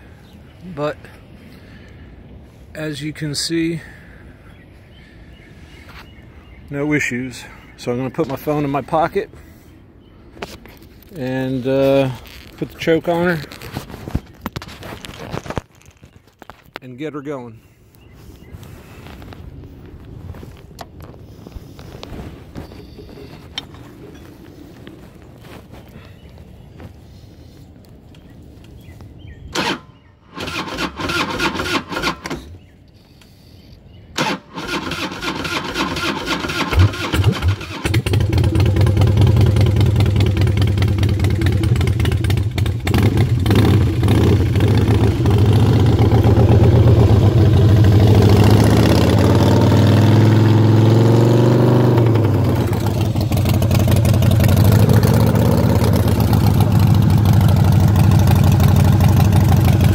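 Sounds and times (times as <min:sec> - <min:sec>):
motorcycle starter cranking: 0:29.6 - 0:29.8, 0:30.4 - 0:32.5, 0:34.2 - 0:47.4
motorcycle engine cold idling: 0:34.2 - 0:48.6, 0:52.0 - 0:59.9.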